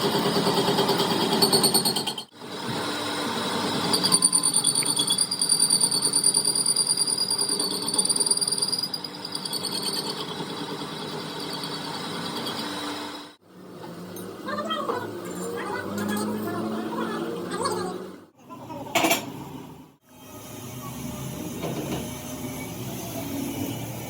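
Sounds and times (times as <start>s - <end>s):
power tool high whine: 2.4s - 13.4s, 20.1s - 24.0s.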